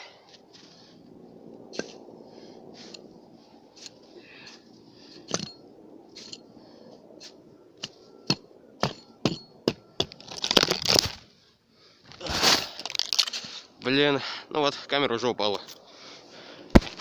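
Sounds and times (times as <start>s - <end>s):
crunching rustles: 10.0s - 14.0s.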